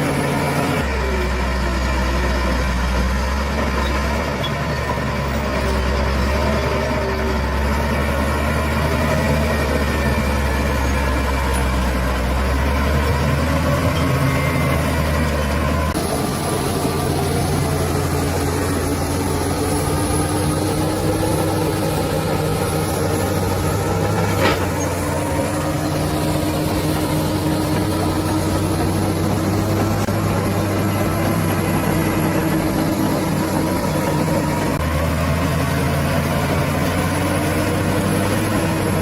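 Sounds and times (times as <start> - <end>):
bulldozer diesel engine running: 0.0 - 39.0.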